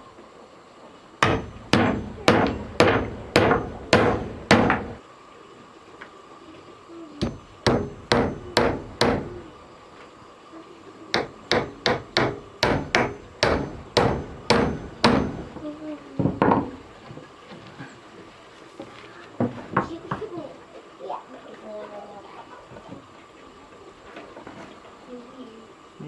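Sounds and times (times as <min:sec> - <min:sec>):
hammer blows: 0:01.2 - 0:05.0, 0:07.2 - 0:09.6, 0:11.1 - 0:16.8.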